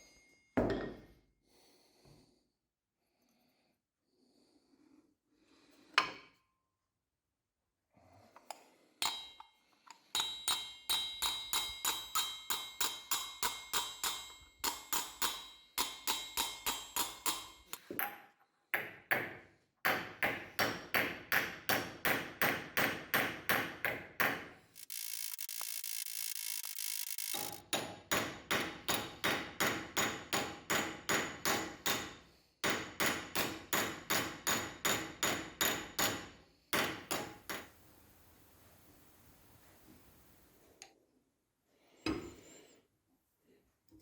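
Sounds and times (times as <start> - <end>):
hammer striking metal: 9.0 - 18.2, 27.6 - 37.7
mechanical whir: 24.8 - 27.6.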